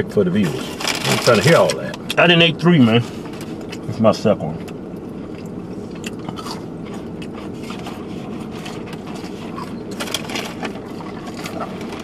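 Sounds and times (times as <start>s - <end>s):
air-conditioning blower hum: 0.0s - 12.0s
person chewing food: 4.6s - 12.0s.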